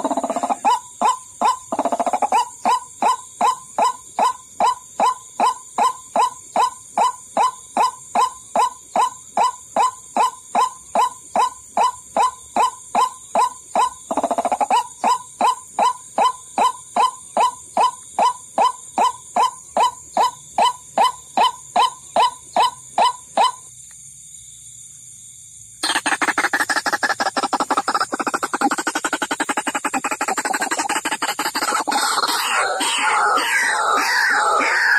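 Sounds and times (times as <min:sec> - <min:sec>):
hoarse bird call: 0:00.0 - 0:23.6, 0:25.8 - 0:34.9.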